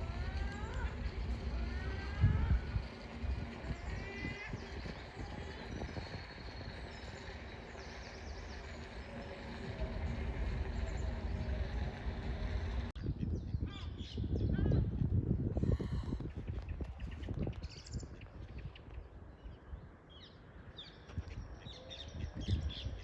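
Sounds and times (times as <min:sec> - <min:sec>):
birds chirping: 0:00.0 - 0:12.9
low rumble: 0:00.0 - 0:13.0
outdoor background noise: 0:00.0 - 0:23.0.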